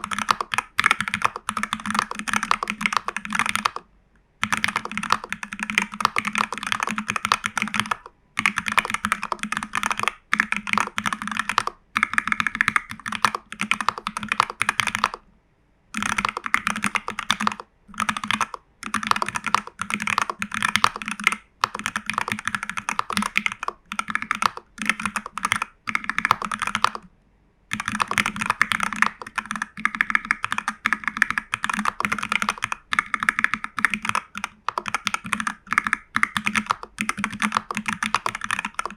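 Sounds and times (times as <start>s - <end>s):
fast typing on mechanical keyboard: 0.0s - 15.2s, 16.0s - 27.1s, 27.7s - 38.9s.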